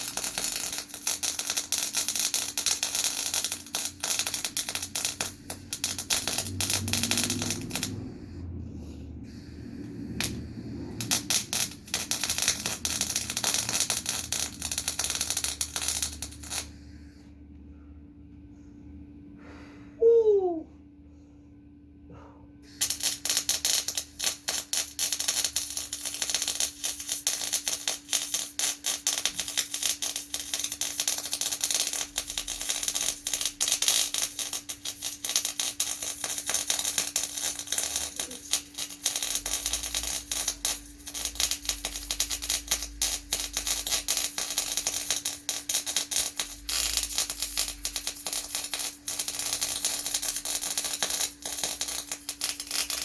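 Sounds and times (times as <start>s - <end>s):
welding arc crackling: 0.0s - 8.0s, 10.2s - 16.7s, 22.8s - 53.0s
low hum: 3.5s - 22.6s.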